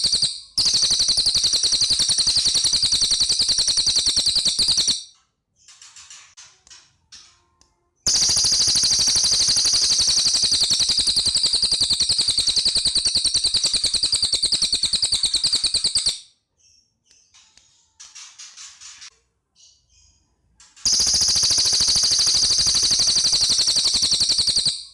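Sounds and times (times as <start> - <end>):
bird singing rapid trill: 0.0 - 5.1, 8.1 - 16.9, 20.8 - 24.9
soft bird chirps: 7.2 - 24.9.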